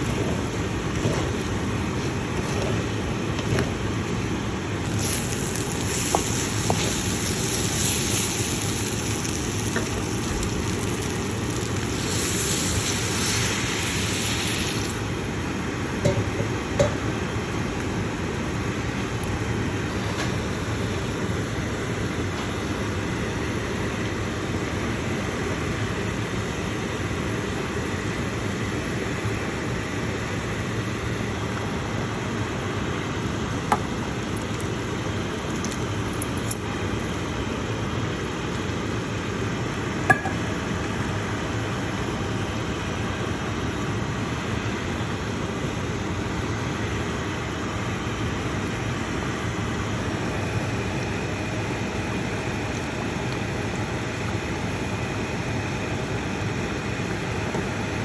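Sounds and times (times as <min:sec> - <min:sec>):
utensil or glass clinking: 0:40.1 - 0:40.4.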